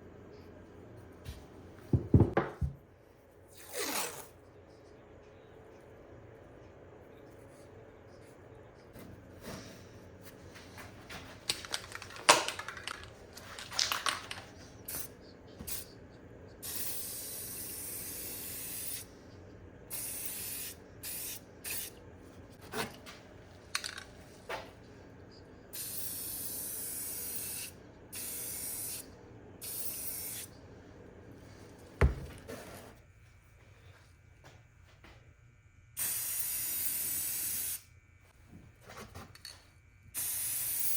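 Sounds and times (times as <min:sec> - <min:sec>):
aerosol spray can hissing: 0:16.6 - 0:19.1, 0:19.9 - 0:21.9, 0:25.8 - 0:29.0, 0:29.6 - 0:30.5, 0:36.0 - 0:37.8, 0:40.2 - 0:40.9.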